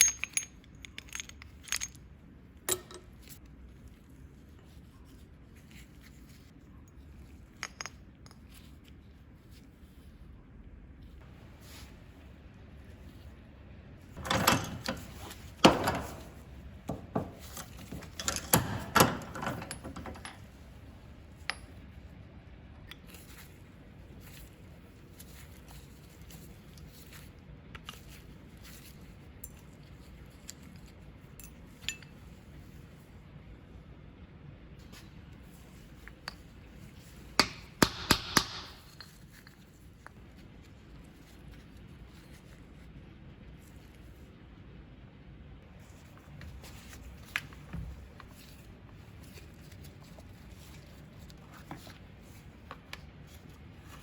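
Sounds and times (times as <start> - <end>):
metal tools clicking and scraping: 0.0 - 3.4, 14.2 - 20.6, 29.4 - 32.4.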